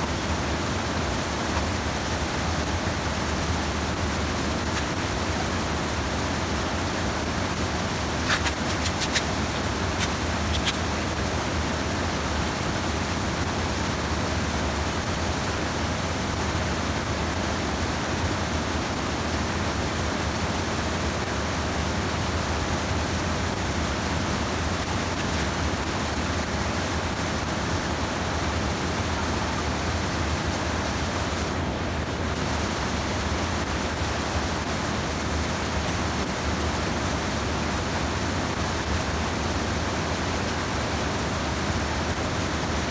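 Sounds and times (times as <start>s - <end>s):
stream water spilling over dam: 0.0s - 42.9s
sharp clicks: 8.3s - 9.3s, 10.0s - 10.8s.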